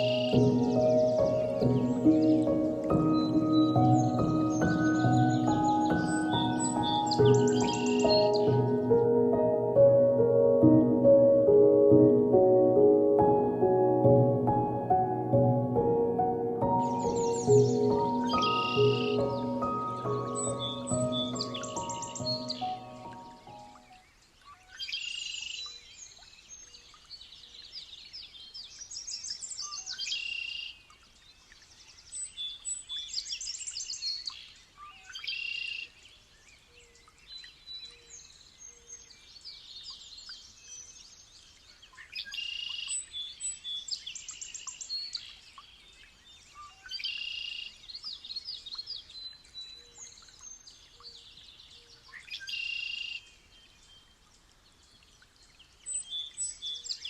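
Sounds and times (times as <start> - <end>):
songbird singing: 0.0 - 57.0.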